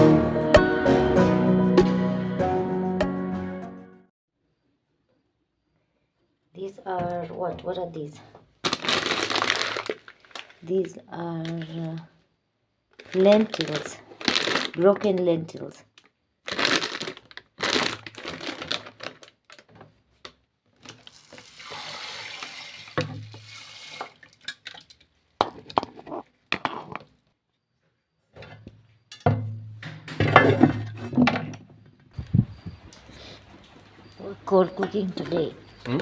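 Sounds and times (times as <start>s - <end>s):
water running: 21.2s - 24.8s
pots and dishes clattering: 29.1s - 31.6s.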